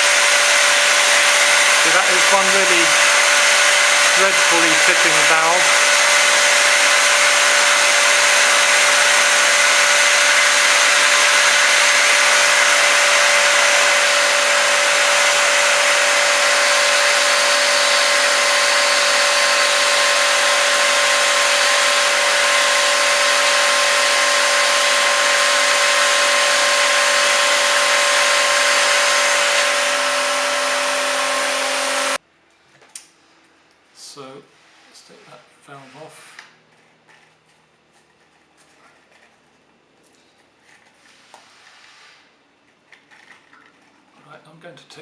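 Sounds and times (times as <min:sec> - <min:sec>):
vacuum motor whining: 0:00.0 - 0:32.2.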